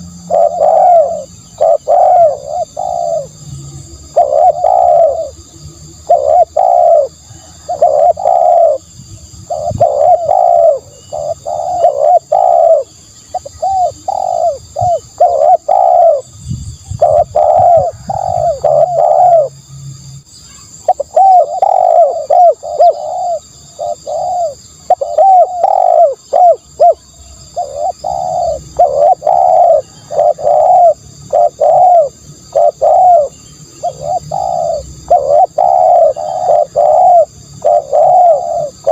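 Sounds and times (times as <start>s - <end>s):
dove cooing: 0.0s - 19.6s, 20.8s - 38.9s.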